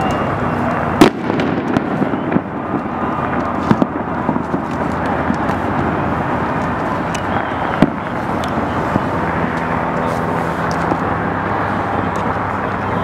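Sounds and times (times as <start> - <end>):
distant fireworks rumble: 0.0 - 13.0
sharp firework pops: 0.9 - 5.9.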